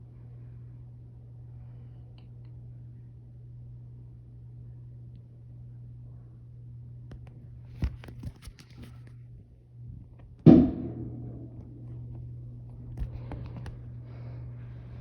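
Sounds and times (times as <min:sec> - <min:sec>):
firework bang: 0:10.5 - 0:11.8.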